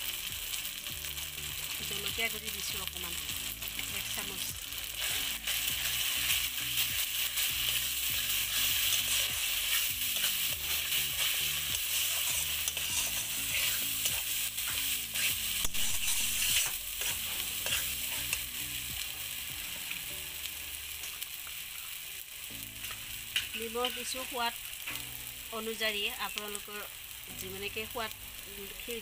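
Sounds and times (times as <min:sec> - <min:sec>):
spices sizzling in hot oil: 0:00.0 - 0:29.0
metal spatula scraping a pan: 0:07.2 - 0:18.5.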